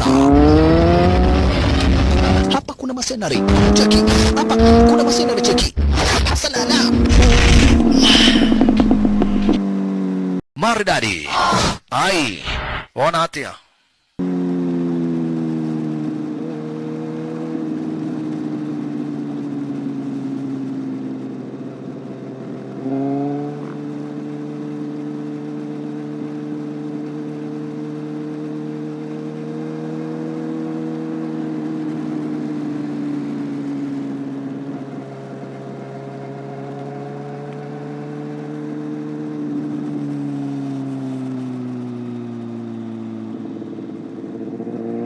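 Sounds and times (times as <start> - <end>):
motorcycle engine running: 3.4 - 5.7, 6.6 - 10.4, 14.2 - 45.0.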